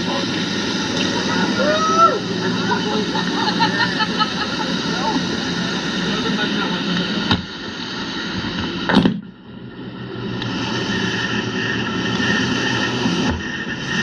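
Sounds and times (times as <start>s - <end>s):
motorboat engine running: 0.0s - 14.0s.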